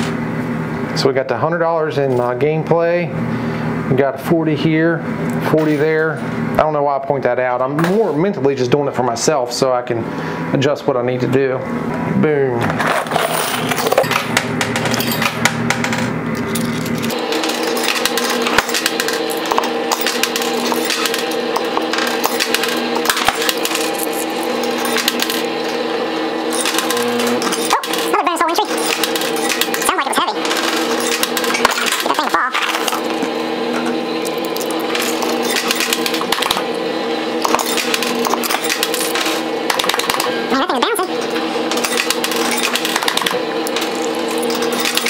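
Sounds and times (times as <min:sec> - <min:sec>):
arcade machines humming: 0:00.0 - 0:45.0
coins clinking in pusher machine: 0:12.7 - 0:36.7, 0:37.4 - 0:45.0.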